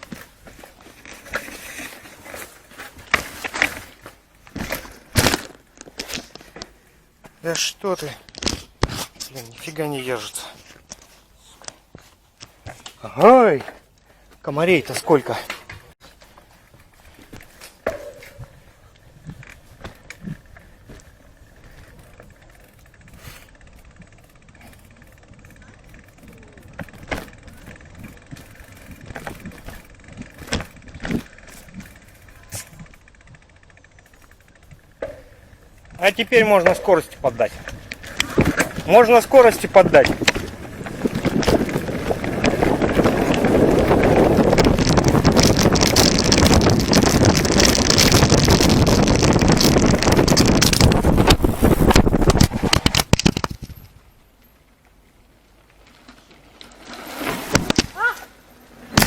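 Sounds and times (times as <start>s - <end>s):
camera falling with clattering knocks: 2.9s - 6.6s, 8.2s - 9.3s, 44.6s - 53.8s, 57.5s - 58.0s
low rumble of movement: 18.3s - 52.8s
sharp knocks and rattles: 23.7s - 54.0s
wind rushing over microphone: 37.2s - 53.9s.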